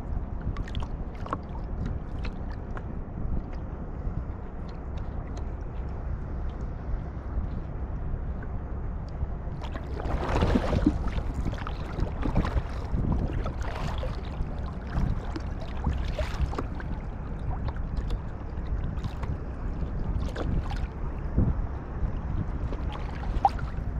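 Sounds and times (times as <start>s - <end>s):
wind rumble on microphone: 0.0s - 23.9s
paddle splashing in water: 9.6s - 21.0s, 22.7s - 23.9s.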